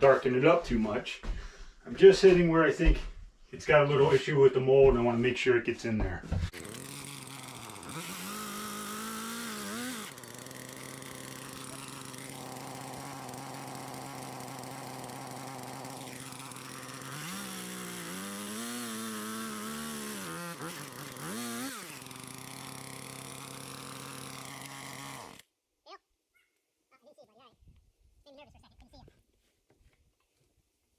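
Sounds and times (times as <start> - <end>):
chainsaw engine revving: 6.5 - 25.4.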